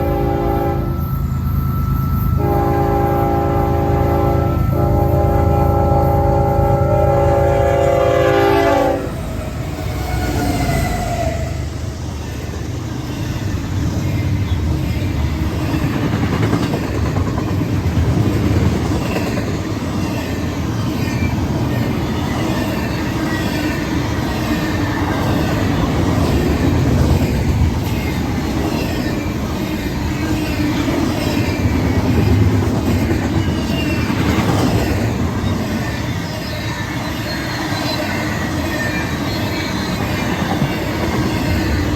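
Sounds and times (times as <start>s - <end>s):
train wheels rumbling on rails: 0.0s - 41.9s
faint wheel squeal: 33.4s - 41.9s.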